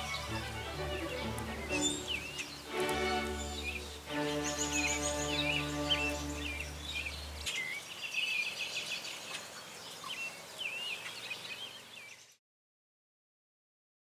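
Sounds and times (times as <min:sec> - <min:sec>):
background music low note: 0:00.0 - 0:07.5
birds chirping: 0:00.0 - 0:12.4.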